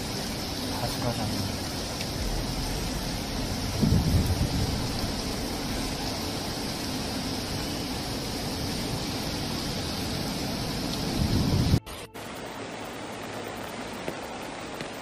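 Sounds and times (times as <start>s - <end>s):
torrential rain: 0.0s - 15.0s
low rumble: 1.5s - 7.2s.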